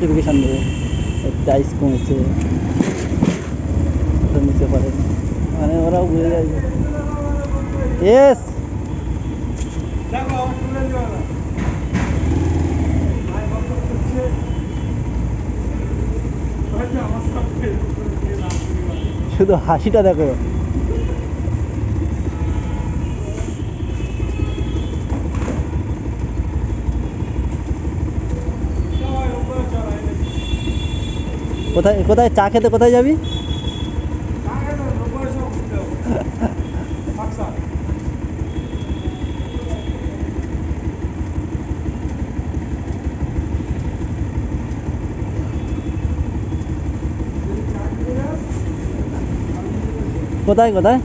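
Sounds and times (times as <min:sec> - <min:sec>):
wind and road rumble: 0:00.0 - 0:10.6
motorcycle engine: 0:00.0 - 0:51.0
passing traffic: 0:00.0 - 0:51.0.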